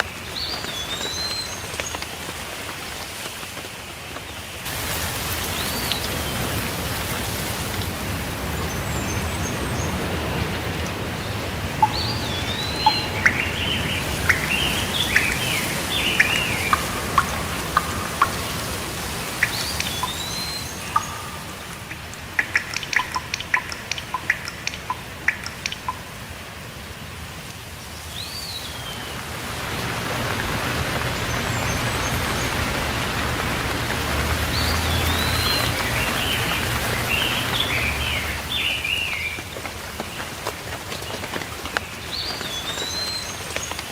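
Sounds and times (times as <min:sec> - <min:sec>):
steady rainfall: 0:00.0 - 0:43.9
birds whistling and chirping: 0:11.8 - 0:26.0, 0:34.5 - 0:39.4.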